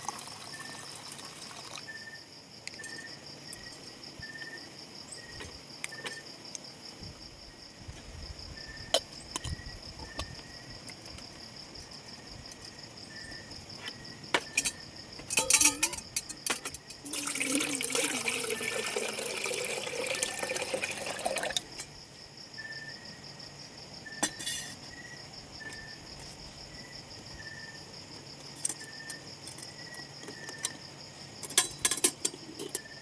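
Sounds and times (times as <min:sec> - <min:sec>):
insects trilling: 0:00.0 - 0:33.0
low short insect chirp: 0:00.2 - 0:06.3, 0:12.5 - 0:14.9, 0:21.7 - 0:23.2.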